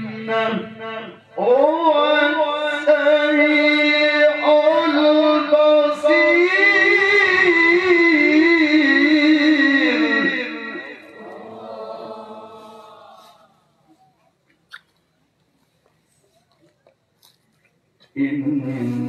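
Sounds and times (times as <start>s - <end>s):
man reciting melodically: 0.0s - 14.0s, 18.0s - 19.0s.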